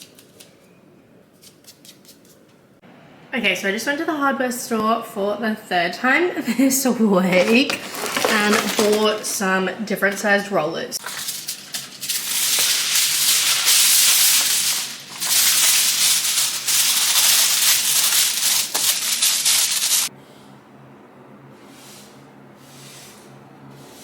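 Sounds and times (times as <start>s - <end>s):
paint roller hissing strokes: 21.5s - 24.0s.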